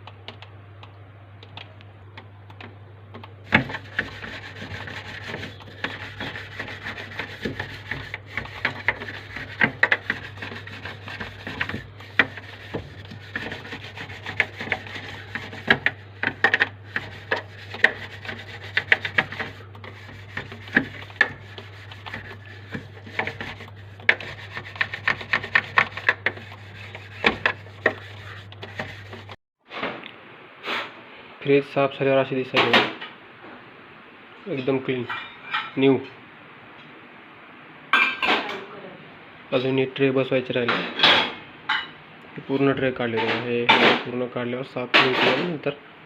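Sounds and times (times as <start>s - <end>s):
steady low hum: 0.0s - 29.4s
brush scrubbing inside refrigerator: 3.1s - 29.4s.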